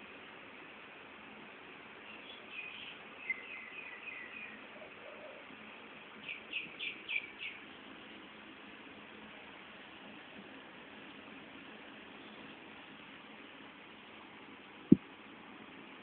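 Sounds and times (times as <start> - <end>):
small bird chirps: 2.0 - 5.4, 6.2 - 7.9.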